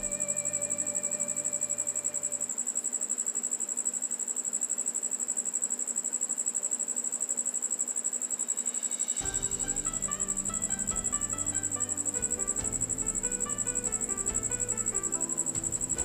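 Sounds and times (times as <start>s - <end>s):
background music: 0.0s - 2.6s, 9.2s - 16.0s
high-pitched insect trill: 0.0s - 16.0s.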